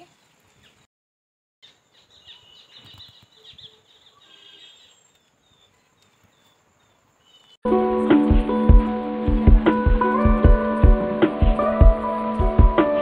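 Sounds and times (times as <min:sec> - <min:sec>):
birds twittering: 0:01.6 - 0:07.6
short bird chirps: 0:01.6 - 0:07.6.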